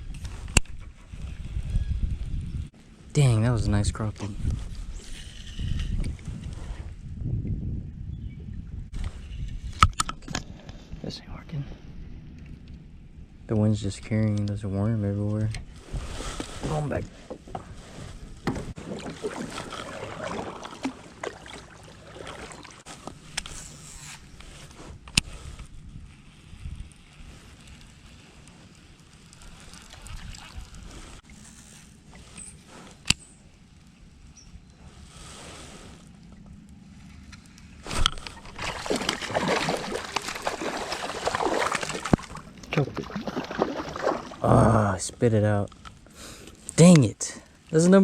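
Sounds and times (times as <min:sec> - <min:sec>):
wind on microphone: 0:00.0 - 0:11.1, 0:15.5 - 0:22.9, 0:24.8 - 0:27.7, 0:29.4 - 0:31.2
water splashing against hull: 0:18.4 - 0:22.9, 0:37.8 - 0:44.6.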